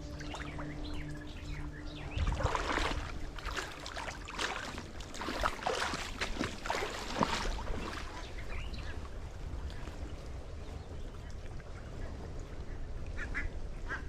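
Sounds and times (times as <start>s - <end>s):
water lapping: 0.0s - 14.0s
water splashing from paddle: 2.1s - 10.1s.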